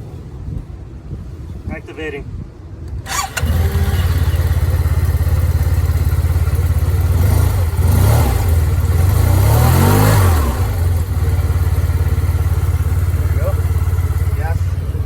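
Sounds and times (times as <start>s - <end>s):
motorcycle engine idling and revving: 3.0s - 15.0s.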